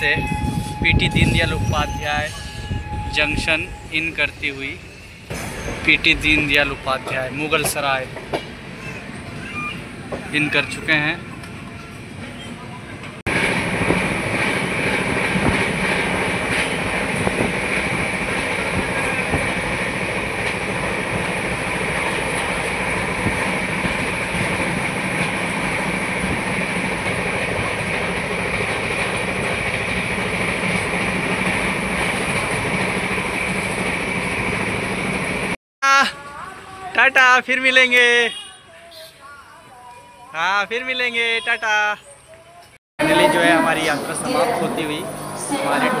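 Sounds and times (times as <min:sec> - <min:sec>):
wheel and rail noise: 0:00.0 - 0:35.6.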